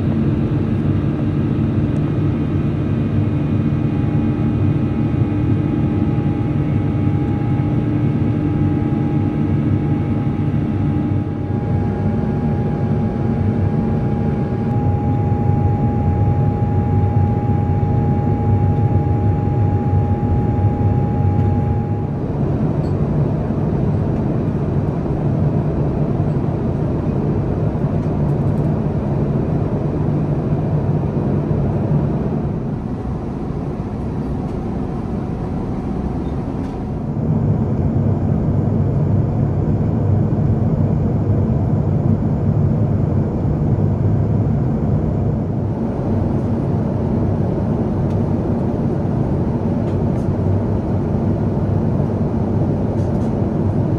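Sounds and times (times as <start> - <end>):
airplane cabin roar: 0.0 - 53.9.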